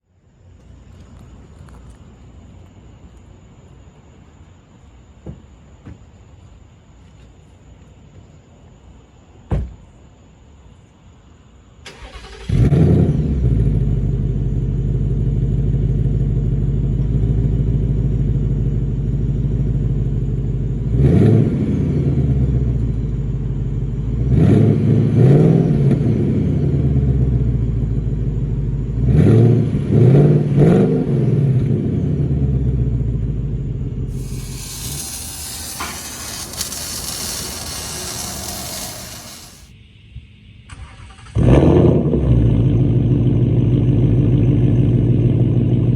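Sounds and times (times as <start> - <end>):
car engine idling and revving: 12.5 - 34.1, 41.4 - 45.9
loud steady hiss: 34.1 - 39.7.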